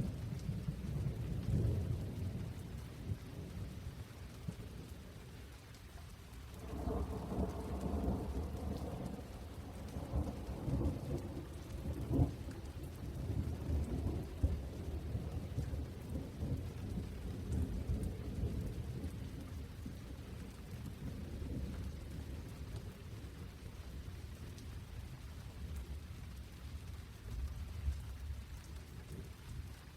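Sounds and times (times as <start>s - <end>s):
thunder rumbling with cracks: 0.0s - 5.0s, 6.5s - 24.6s
rain falling: 0.0s - 29.9s.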